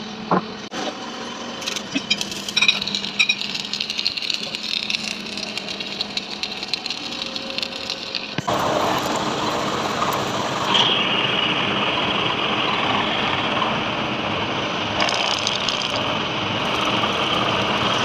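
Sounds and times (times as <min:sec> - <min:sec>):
workshop machinery running: 0:00.0 - 0:18.0
rattles and sharp clicks: 0:01.6 - 0:08.5.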